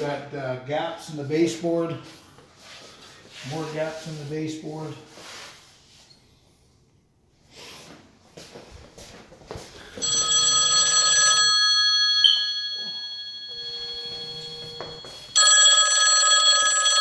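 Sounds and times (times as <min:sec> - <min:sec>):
telephone ringing: 0:10.0 - 0:17.0.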